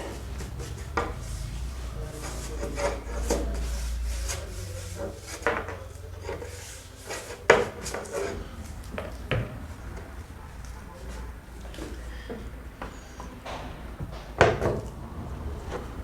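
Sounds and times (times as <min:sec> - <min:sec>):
wooden pieces rubbing: 0:00.0 - 0:09.0.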